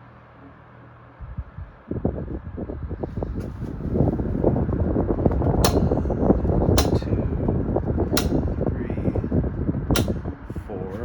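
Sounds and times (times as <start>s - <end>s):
fan airflow rumbling on microphone: 0.0s - 11.0s
sharp clicks: 5.4s - 6.1s, 6.7s - 7.1s, 8.1s - 8.5s, 10.0s - 10.3s.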